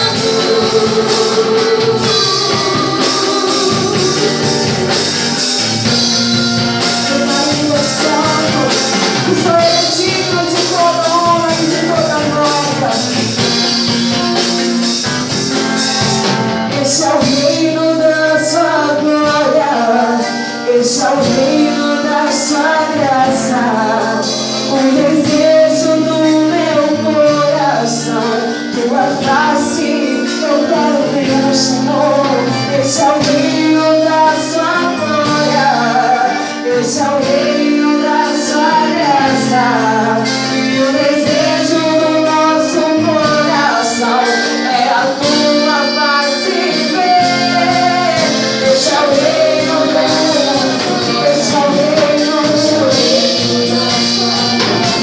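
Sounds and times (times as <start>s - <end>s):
worship band with singing: 0.0s - 55.0s.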